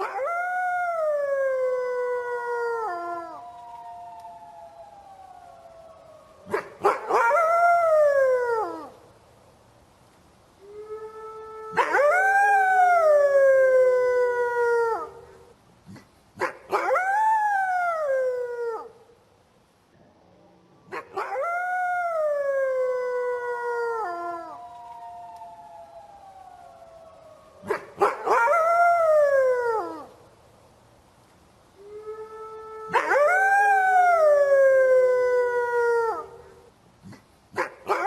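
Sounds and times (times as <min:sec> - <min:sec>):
wolf howling: 0:00.0 - 0:09.0, 0:10.6 - 0:15.3, 0:20.0 - 0:30.1, 0:31.8 - 0:36.6.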